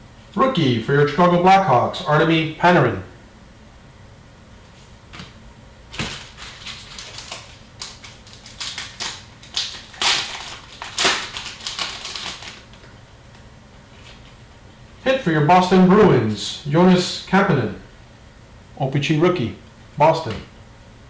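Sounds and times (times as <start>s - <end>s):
cards and wrapper crinkling: 5.9s - 12.9s.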